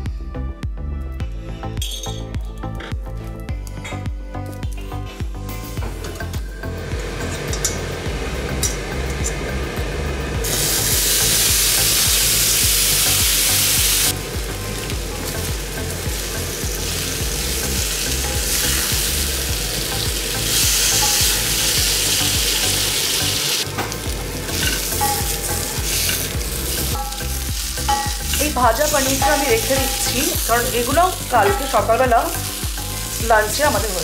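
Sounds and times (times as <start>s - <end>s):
food sizzling in frying pan: 10.4s - 34.0s.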